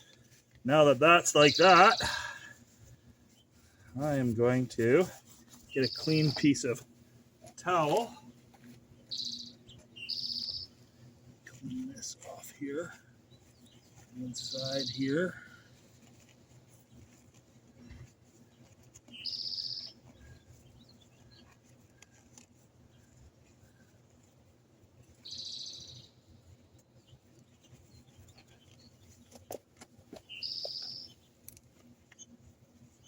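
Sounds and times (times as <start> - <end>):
small bird high call: 5.6 - 6.5, 9.1 - 10.8, 19.1 - 21.5, 25.2 - 26.2, 30.2 - 31.3.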